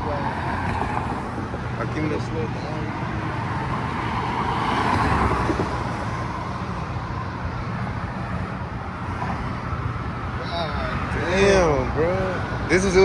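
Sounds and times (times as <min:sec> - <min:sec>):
car passing close by: 0:00.0 - 0:07.2
low rumble of traffic: 0:00.0 - 0:13.0.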